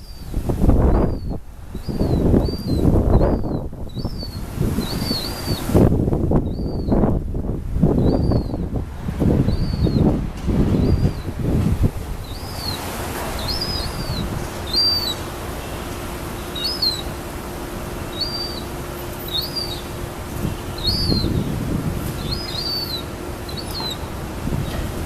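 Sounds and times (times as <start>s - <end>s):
wind noise rumbling: 0.0s - 15.4s, 19.1s - 25.0s
gull chicks begging peeps: 12.2s - 15.4s, 16.3s - 17.3s, 18.1s - 24.8s.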